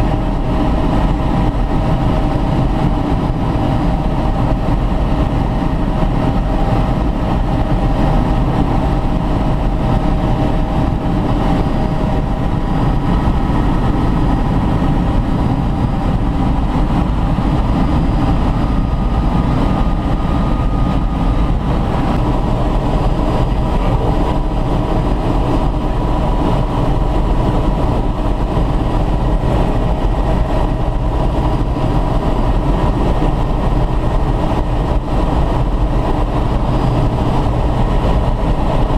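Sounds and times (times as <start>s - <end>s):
faint whining tones: 0.0s - 27.9s
helicopter cabin drone: 0.0s - 38.9s.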